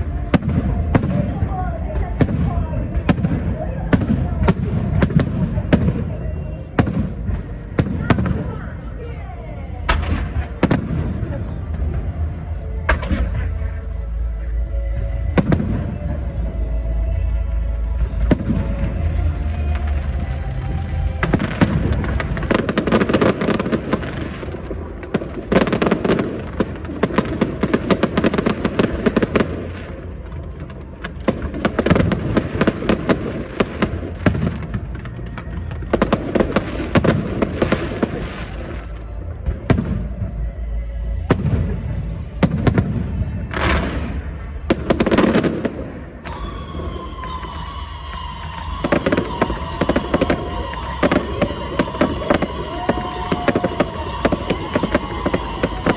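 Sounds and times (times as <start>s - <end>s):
fireworks booms: 0.0s - 8.9s, 9.8s - 13.8s, 41.3s - 55.9s
fireworks crackling: 0.0s - 55.9s.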